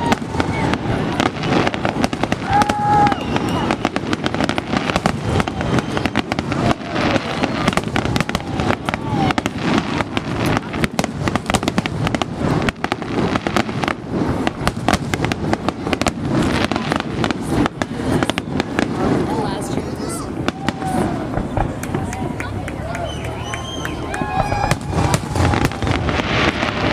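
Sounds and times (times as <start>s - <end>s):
fireworks bangs and crackles: 0.0s - 26.9s
voices: 15.7s - 26.7s.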